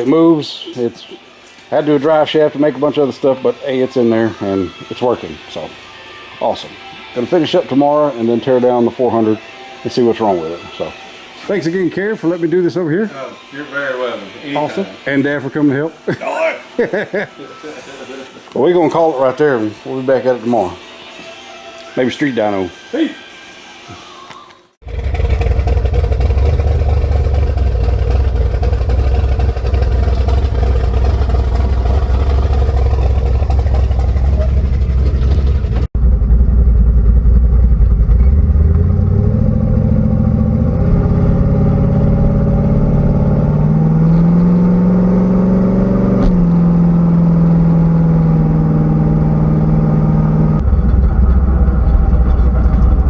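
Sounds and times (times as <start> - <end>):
car engine revving: 24.8 - 53.0.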